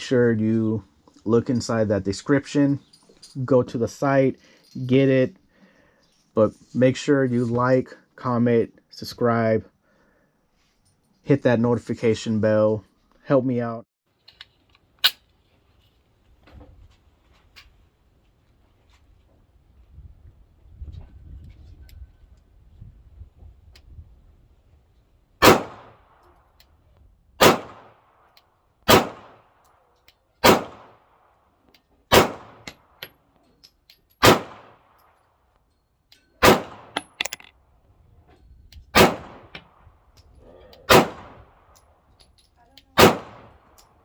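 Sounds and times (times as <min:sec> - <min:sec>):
pistol single shots: 0:25.4 - 0:26.1, 0:27.4 - 0:28.0, 0:28.9 - 0:29.5, 0:30.4 - 0:31.0, 0:32.1 - 0:32.8, 0:34.2 - 0:34.8, 0:36.4 - 0:37.1, 0:39.0 - 0:39.6, 0:40.9 - 0:41.4, 0:43.0 - 0:43.6.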